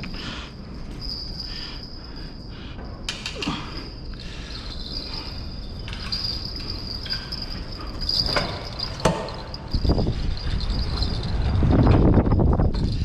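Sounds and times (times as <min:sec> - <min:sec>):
wind rumble on microphone: 0:08.5 - 0:13.0.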